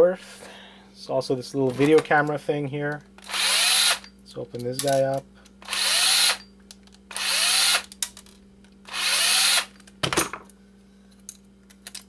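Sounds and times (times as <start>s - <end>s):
power drill spinning: 3.2s - 4.1s, 5.6s - 6.4s, 7.1s - 7.9s, 8.9s - 9.8s.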